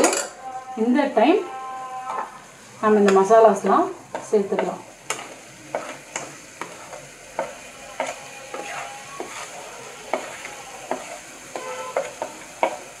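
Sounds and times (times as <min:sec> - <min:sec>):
food sizzling in a pot: 0:00.0 - 0:13.0
plastic spoon scraping a plate: 0:08.0 - 0:12.2.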